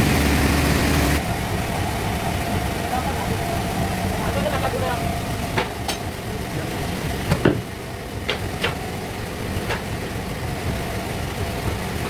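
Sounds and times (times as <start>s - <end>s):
band sawmill humming: 0.0s - 12.0s
sharp knocks: 7.3s - 8.8s.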